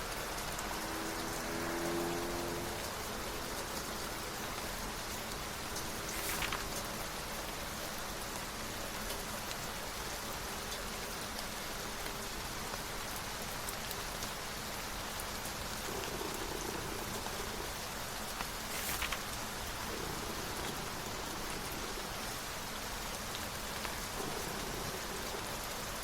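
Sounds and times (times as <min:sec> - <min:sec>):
steady rain falling: 0:00.0 - 0:26.0
book page turning: 0:05.8 - 0:07.0, 0:18.4 - 0:22.1.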